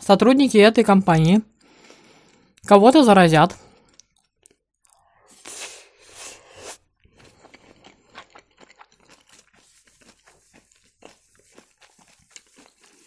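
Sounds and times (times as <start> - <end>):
chewing crunchy food: 1.5 - 2.7, 3.5 - 5.4, 6.9 - 13.0.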